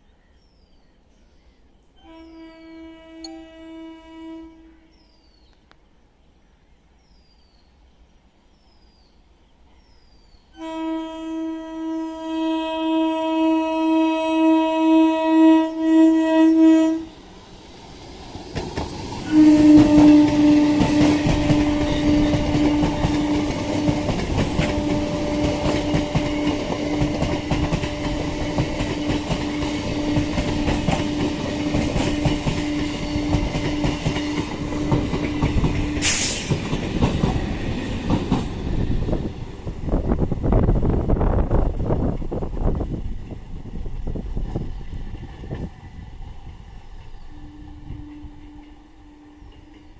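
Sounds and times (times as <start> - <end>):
train horn blast: 2.0 - 5.0, 10.5 - 17.2, 19.2 - 35.2, 47.2 - 49.9
train wheels clattering on rails: 17.8 - 40.1.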